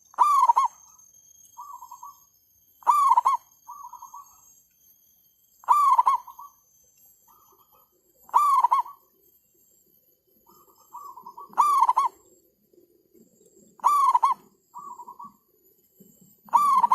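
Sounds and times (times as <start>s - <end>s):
doves cooing: 0.0s - 0.8s, 2.8s - 4.3s, 5.6s - 6.5s, 8.3s - 9.0s, 10.5s - 12.2s, 13.8s - 15.4s, 16.5s - 16.9s.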